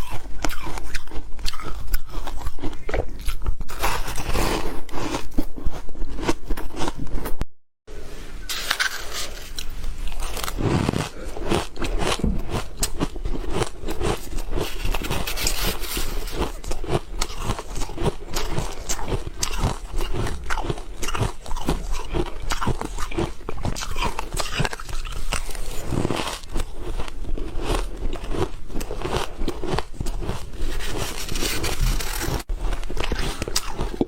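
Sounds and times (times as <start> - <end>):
ice crunching in mouth: 8.6 - 34.0.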